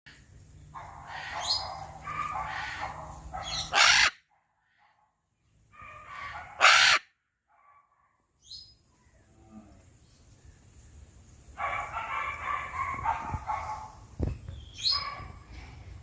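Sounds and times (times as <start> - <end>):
macaw squawking: 1.0 - 4.2, 5.8 - 7.1.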